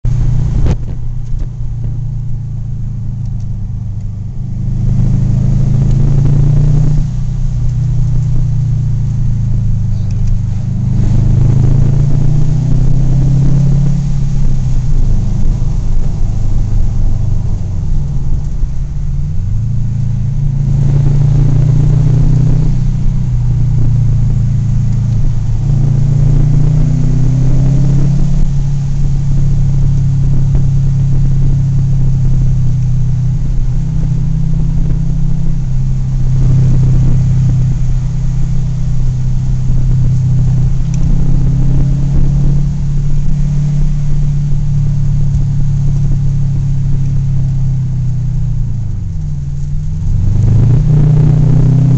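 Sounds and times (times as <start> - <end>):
car engine accelerating: 0.0 - 51.9.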